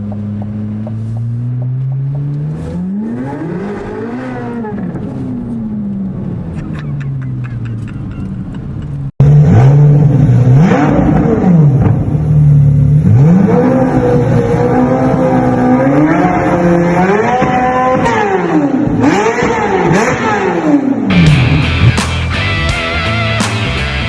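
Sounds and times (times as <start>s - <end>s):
sports car engine revving: 9.2s - 22.2s.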